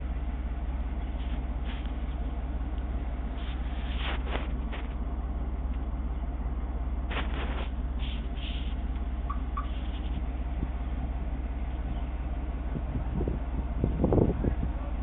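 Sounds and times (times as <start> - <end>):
pickup engine idling: 0.0 - 15.0
brief hissy noises: 7.1 - 8.8.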